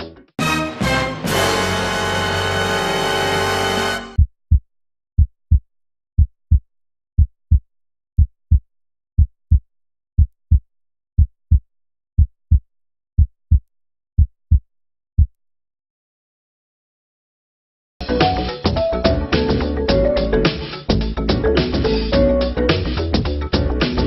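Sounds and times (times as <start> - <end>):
heartbeat thumps: 5.2 - 15.4.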